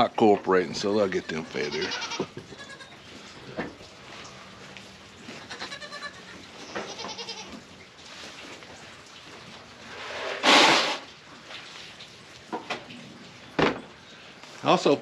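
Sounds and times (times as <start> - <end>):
goats bleating: 0.9 - 3.0, 5.3 - 7.6.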